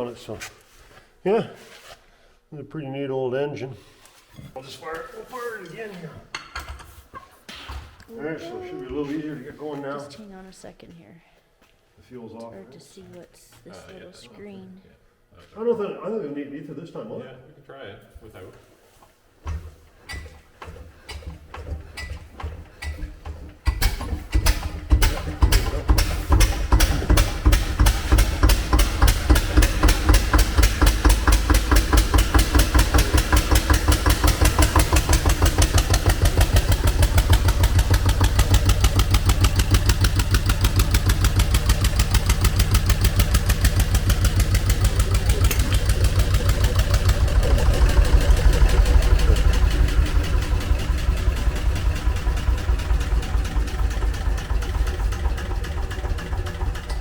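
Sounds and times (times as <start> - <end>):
stationary engine running: 19.5 - 57.0.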